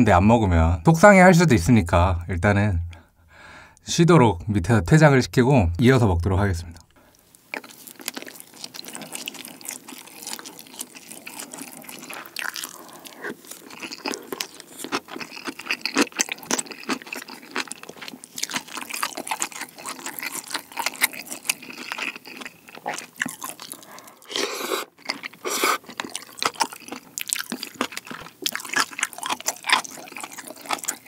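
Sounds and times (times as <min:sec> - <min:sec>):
close chewing with crunches: 0:07.0 - 0:31.0.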